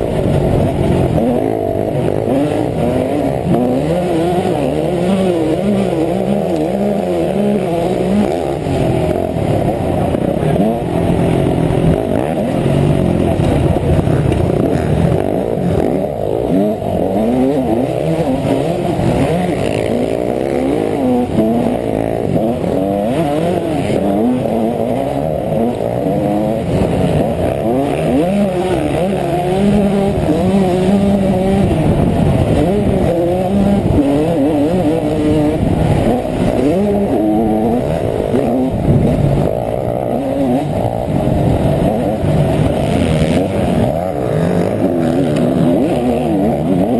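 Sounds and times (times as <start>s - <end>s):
two-stroke motorcycle engine revving: 0.0s - 46.9s.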